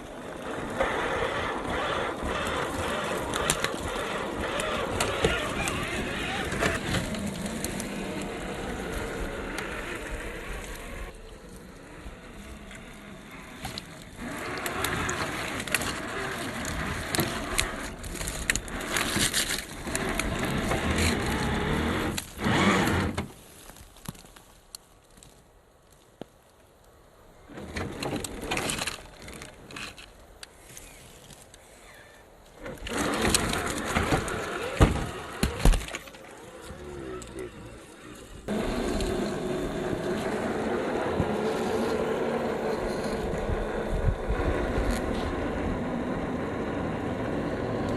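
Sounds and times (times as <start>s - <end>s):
tyres clicking on debris: 0.0s - 11.5s, 12.4s - 26.9s, 32.2s - 43.6s
toy truck motor running: 0.2s - 23.2s, 31.9s - 47.9s.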